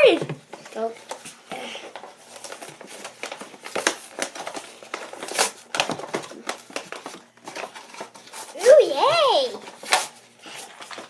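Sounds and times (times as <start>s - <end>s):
packaging crinkling and tearing: 1.9s - 8.8s, 9.6s - 11.0s.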